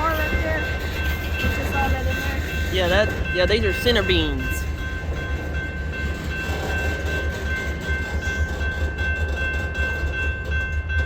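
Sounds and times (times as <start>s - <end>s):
freight train rumble: 0.0s - 11.0s.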